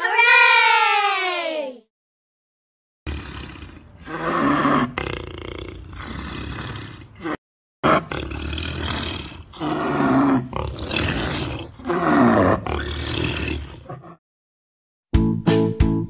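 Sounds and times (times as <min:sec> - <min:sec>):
big cat growling and roaring: 0:03.1 - 0:14.2.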